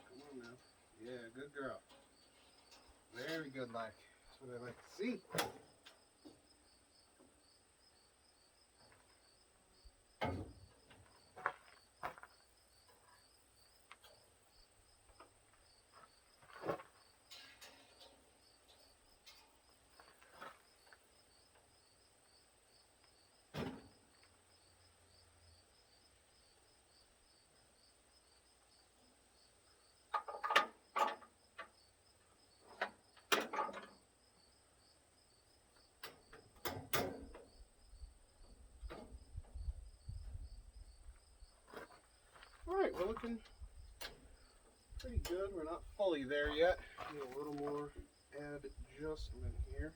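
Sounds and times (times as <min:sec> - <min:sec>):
insects chirping: 0:00.0 - 0:49.9.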